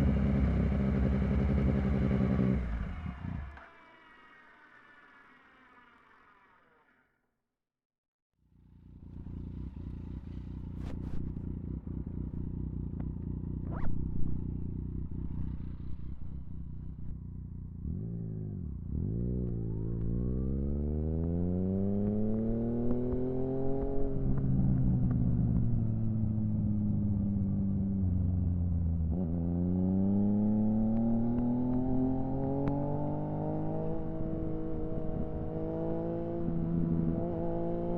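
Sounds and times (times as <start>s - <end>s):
motorcycle engine revving: 0.0s - 7.0s, 8.5s - 37.9s.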